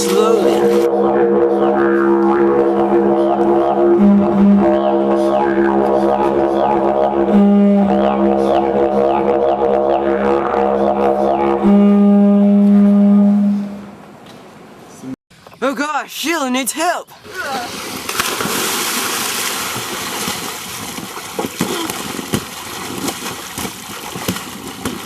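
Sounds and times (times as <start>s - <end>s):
didgeridoo drone: 0.0s - 14.0s.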